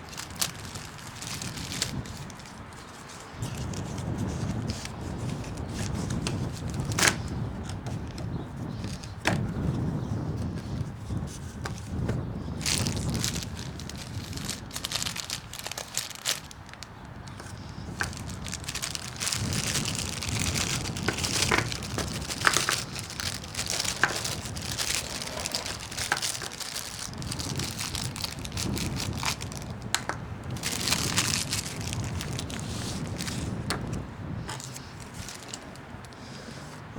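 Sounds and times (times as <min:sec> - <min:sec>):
wind rumble on microphone: 0:00.0 - 0:36.9.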